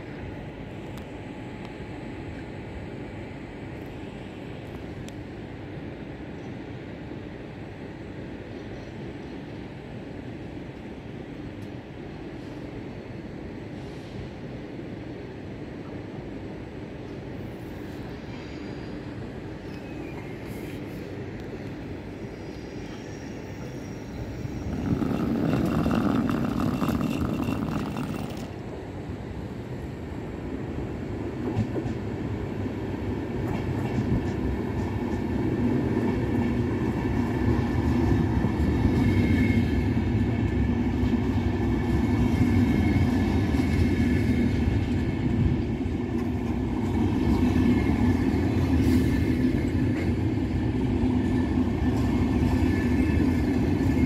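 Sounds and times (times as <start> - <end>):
train wheels rumbling on rails: 0.0 - 54.0
high wheel squeal: 22.2 - 28.5.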